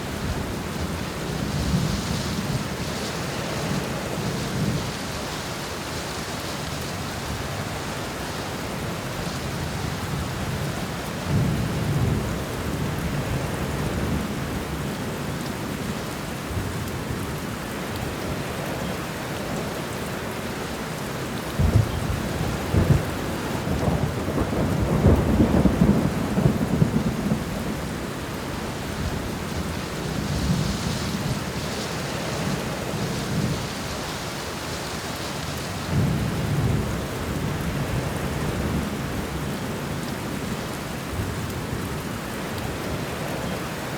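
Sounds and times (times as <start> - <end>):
heavy rain: 0.0 - 43.9
rolling thunder: 21.6 - 28.0.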